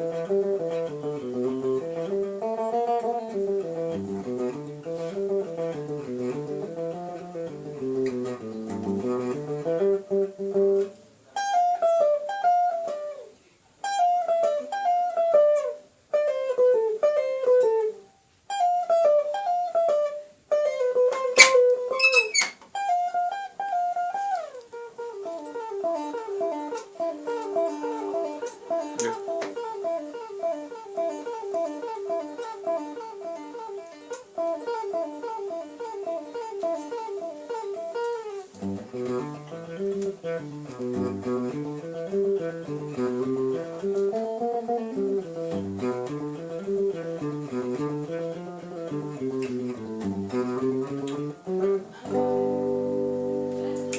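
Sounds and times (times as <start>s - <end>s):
solo guitar plucked notes: 0.0s - 53.9s.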